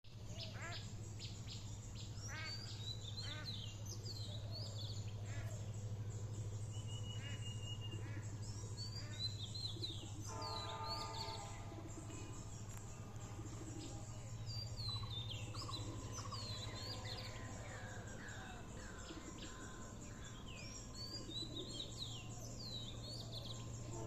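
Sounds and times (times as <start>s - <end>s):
steady low hum: 0.1s - 24.0s
birds chirping and calling: 0.3s - 24.0s
bird call with spaced tones: 2.0s - 14.0s.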